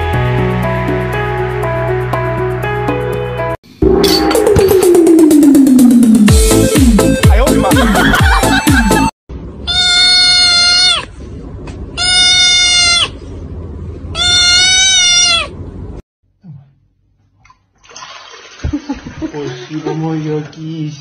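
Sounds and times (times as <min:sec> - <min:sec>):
kitten meowing: 0:09.7 - 0:11.1, 0:12.0 - 0:13.2, 0:14.2 - 0:15.5.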